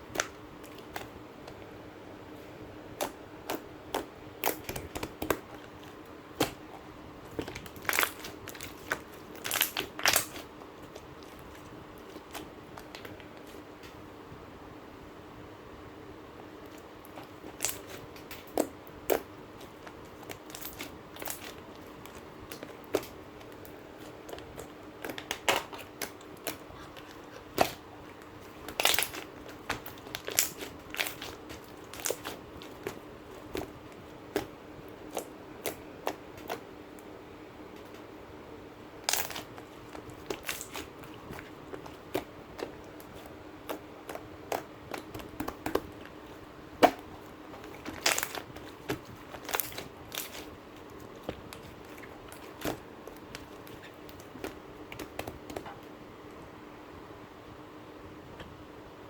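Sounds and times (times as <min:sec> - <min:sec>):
slime clicking and popping: 0:07.4 - 0:10.4, 0:28.7 - 0:33.7.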